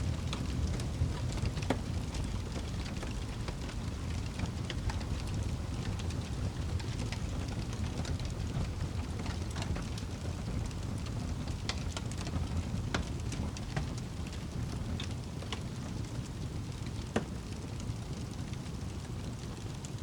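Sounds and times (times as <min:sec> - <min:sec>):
wood fire burning: 0:00.0 - 0:20.0.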